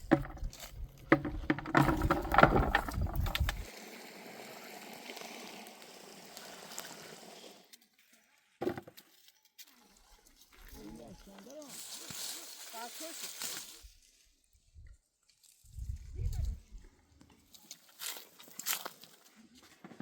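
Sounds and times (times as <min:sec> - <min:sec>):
knocks and splashes: 0:00.0 - 0:03.6.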